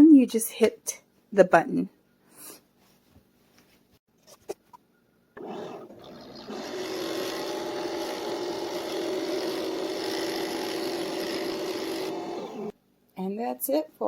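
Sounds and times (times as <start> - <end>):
coffee machine pump whirring: 5.4 - 12.7.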